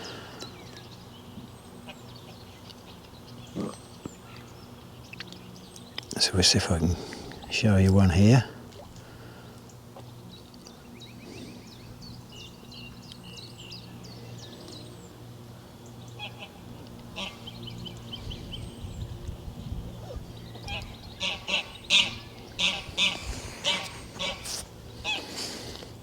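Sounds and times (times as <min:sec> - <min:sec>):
small birds chirping: 0:00.0 - 0:26.0
steady low hum: 0:00.0 - 0:26.0
geese honking: 0:16.2 - 0:17.5, 0:20.6 - 0:25.4.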